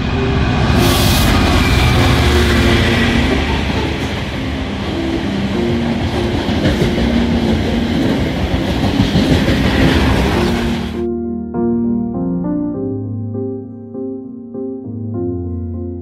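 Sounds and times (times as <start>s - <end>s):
piano music: 0.0s - 16.0s
train wagons clattering on rails: 0.4s - 11.0s.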